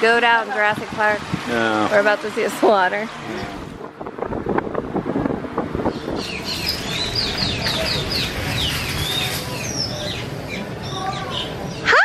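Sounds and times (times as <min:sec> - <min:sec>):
crowd chatter: 0:00.0 - 0:03.8, 0:06.4 - 0:12.0
birds chirping: 0:03.1 - 0:03.7, 0:05.8 - 0:12.0.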